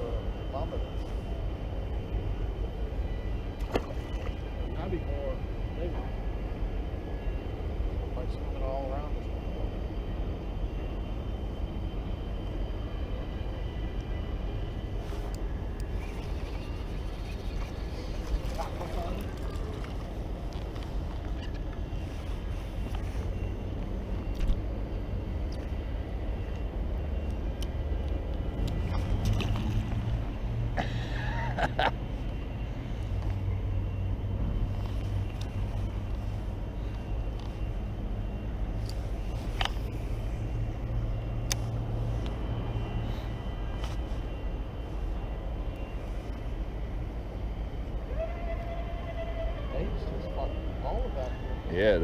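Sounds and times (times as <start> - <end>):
steady low rumble: 0.0 - 48.2
wavering squeak: 15.0 - 23.6.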